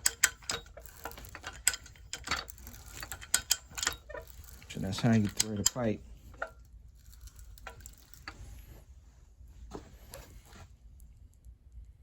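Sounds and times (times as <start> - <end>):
tools clicking and knocking: 0.0 - 8.7
low steady rumble: 0.0 - 12.0.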